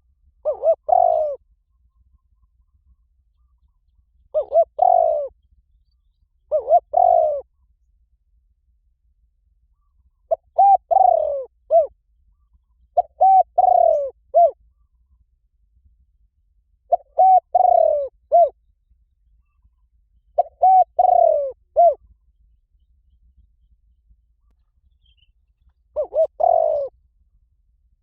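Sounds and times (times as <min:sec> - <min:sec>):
dove cooing: 0:00.0 - 0:01.4, 0:04.3 - 0:05.4, 0:06.5 - 0:07.5, 0:09.8 - 0:12.0, 0:13.0 - 0:14.8, 0:16.9 - 0:18.6, 0:20.4 - 0:22.2, 0:26.0 - 0:27.0.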